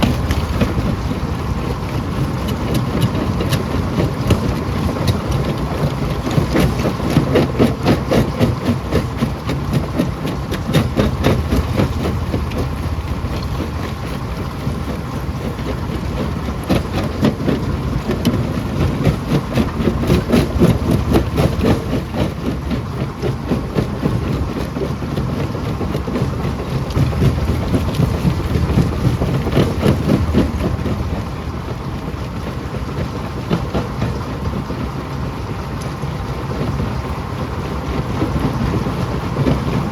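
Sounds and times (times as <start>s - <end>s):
rocks cracking and knocking: 0.0s - 15.8s, 16.6s - 22.6s, 25.9s - 31.5s
rock crusher rumbling: 0.0s - 34.8s.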